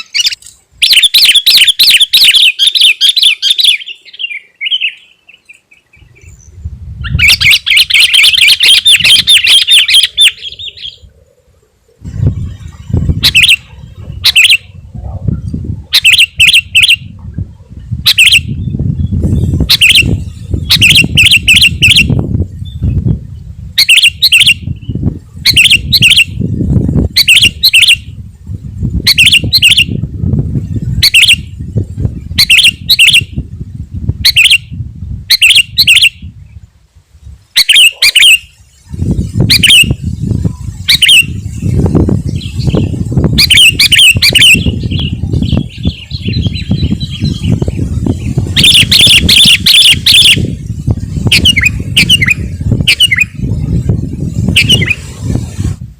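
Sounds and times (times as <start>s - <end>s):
bird calling sharp notes: 0.0s - 11.1s, 13.0s - 14.8s, 15.9s - 17.2s, 18.0s - 18.8s, 19.5s - 22.8s, 23.8s - 28.2s, 29.0s - 30.0s, 31.0s - 31.6s, 32.3s - 33.4s, 34.2s - 36.3s, 37.5s - 50.6s, 51.2s - 53.5s, 54.4s - 55.2s
low rumbling noise: 5.9s - 16.0s.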